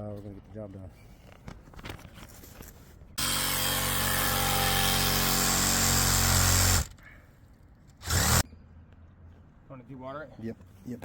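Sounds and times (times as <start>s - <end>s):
power tool electric motor running: 3.2s - 6.9s, 8.0s - 8.4s.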